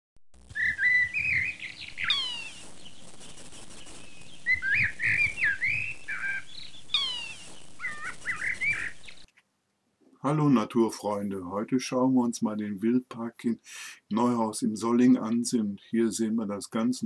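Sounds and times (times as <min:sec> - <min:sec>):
songbird chirping: 0:00.5 - 0:09.5.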